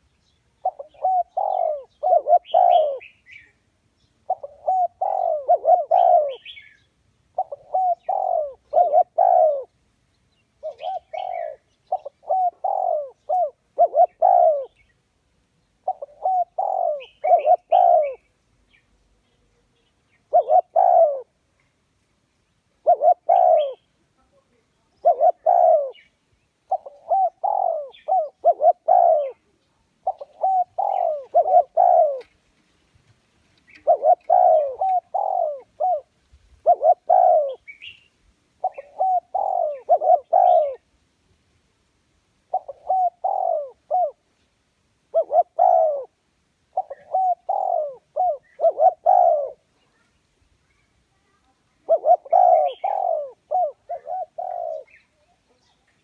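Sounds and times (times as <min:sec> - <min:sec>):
dove cooing: 0:00.6 - 0:03.6, 0:04.2 - 0:09.8, 0:10.6 - 0:14.9, 0:15.8 - 0:18.3, 0:20.2 - 0:21.4, 0:22.8 - 0:24.0, 0:24.9 - 0:32.4, 0:33.6 - 0:38.0, 0:38.6 - 0:40.9, 0:42.4 - 0:44.3, 0:45.1 - 0:50.1, 0:51.7 - 0:56.0.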